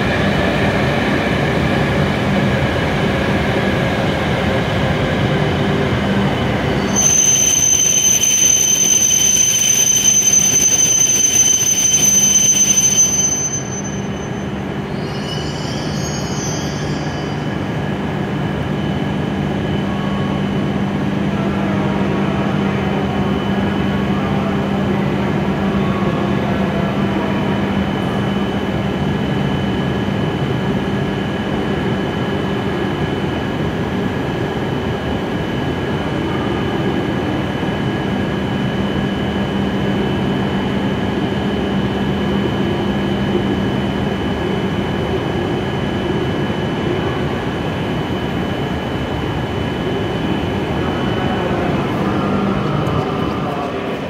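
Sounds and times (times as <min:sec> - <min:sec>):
standing train humming: 0:00.0 - 0:54.0
train brakes squealing: 0:06.7 - 0:18.0.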